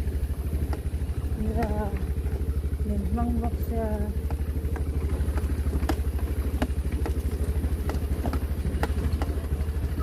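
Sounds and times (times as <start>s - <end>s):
vehicle engine humming: 0.0s - 10.0s
clicks and rattles: 3.6s - 10.0s.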